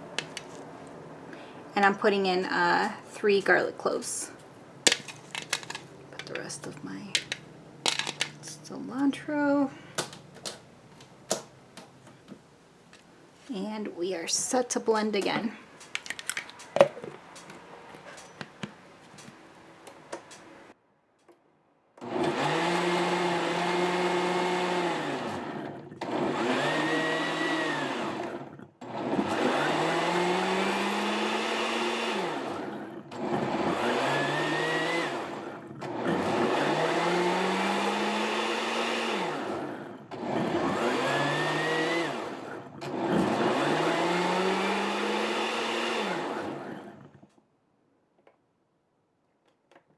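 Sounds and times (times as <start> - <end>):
blender motor running: 22.0 - 47.3.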